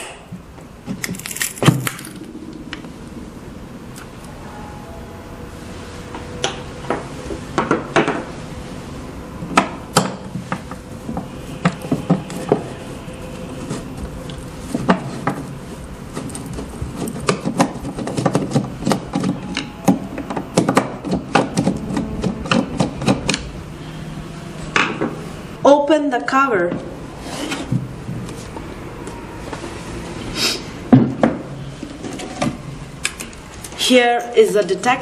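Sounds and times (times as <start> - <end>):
hand tools clicking and knocking: 16.1 - 23.5.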